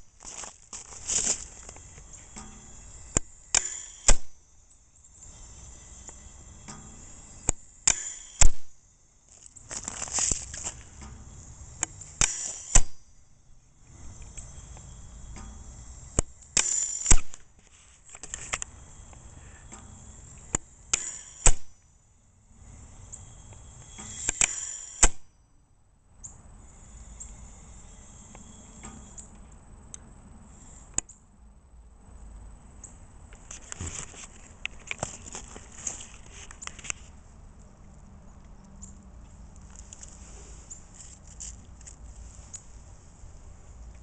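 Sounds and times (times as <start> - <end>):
gas hissing: 0.0 - 13.1, 13.7 - 21.8, 22.5 - 25.3, 26.6 - 29.2
valve mechanical clicks: 1.6 - 8.8, 10.3 - 13.0, 13.7 - 17.5, 18.1 - 21.8, 22.7 - 25.3, 26.2 - 31.2.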